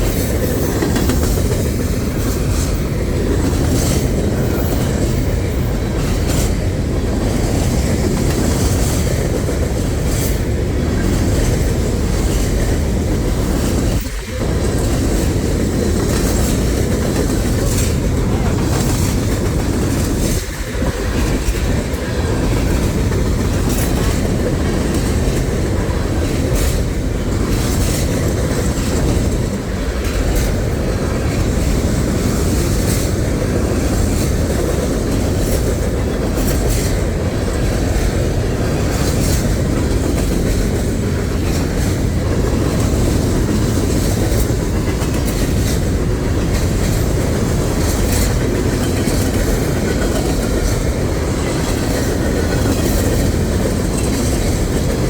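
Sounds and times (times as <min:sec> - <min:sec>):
freight train cars rolling: 0:00.0 - 0:55.0
wheels clacking over rail joints: 0:00.0 - 0:55.0.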